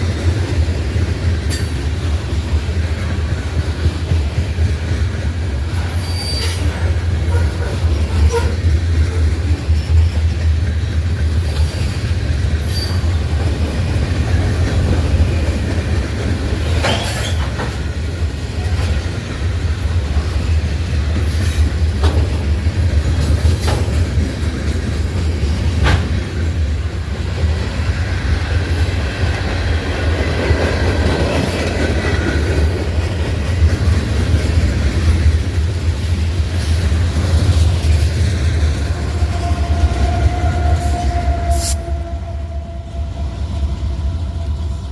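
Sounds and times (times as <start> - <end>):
train cars rumbling past: 0.0 - 44.9
faint wheel squeal: 5.9 - 7.5.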